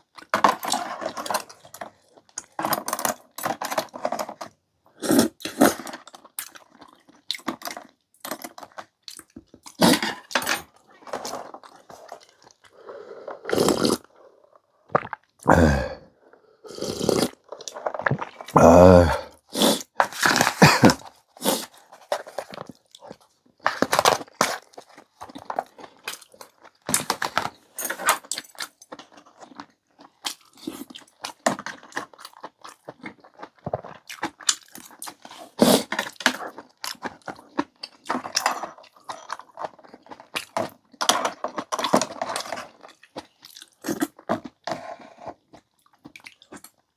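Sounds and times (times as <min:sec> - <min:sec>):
chewing noodles: 0:05.0 - 0:10.2, 0:10.9 - 0:27.6, 0:28.2 - 0:46.9
loud mouth sounds: 0:12.8 - 0:14.1, 0:15.0 - 0:17.4, 0:18.1 - 0:21.6.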